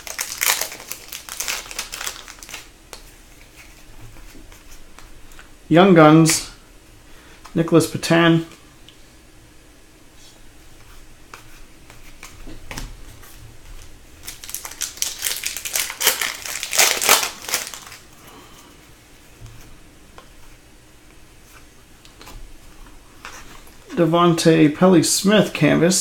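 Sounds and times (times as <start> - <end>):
foil wrapper crinkling: 0.0 - 2.7, 13.8 - 18.1.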